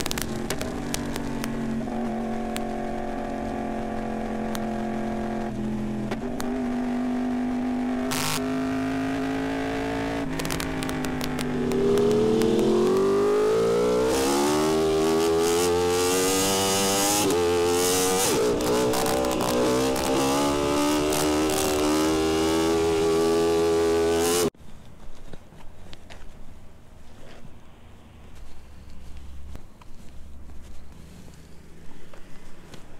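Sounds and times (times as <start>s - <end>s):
motorcycle engine revving: 0.0s - 24.6s
quiet uneven noises: 24.6s - 32.9s.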